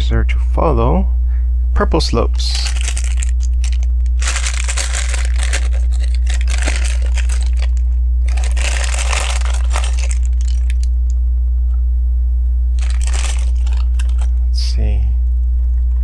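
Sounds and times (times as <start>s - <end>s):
steady low hum: 0.0s - 16.0s
hands sifting plastic bricks: 2.4s - 10.9s, 12.8s - 14.3s.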